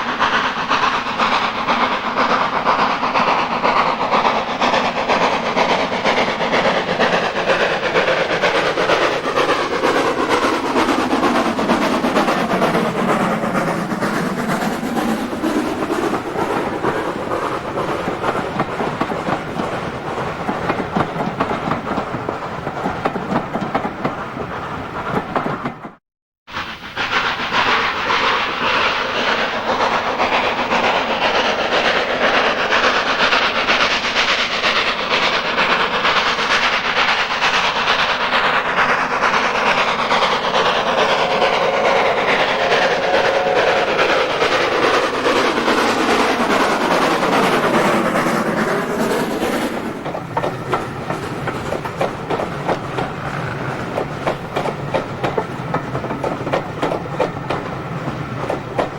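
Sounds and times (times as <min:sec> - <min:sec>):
train rail noise: 0:00.0 - 0:58.9
wheels clattering over rail joints: 0:44.7 - 0:58.9.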